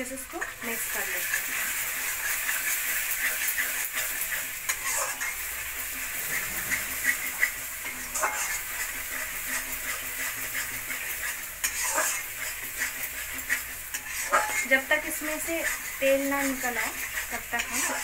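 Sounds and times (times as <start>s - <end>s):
paste sizzling in oil: 0.0s - 18.0s
spoon scraping metal pan: 0.3s - 18.0s.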